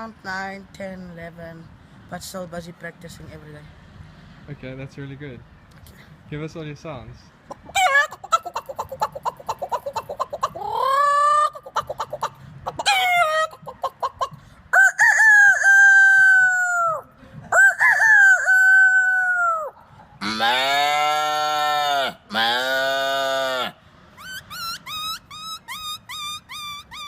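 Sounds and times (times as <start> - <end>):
drawn-out animal call imitation: 7.5 - 27.0
man imitating hen clucking: 7.5 - 27.0
man imitating rooster crows: 14.8 - 23.7.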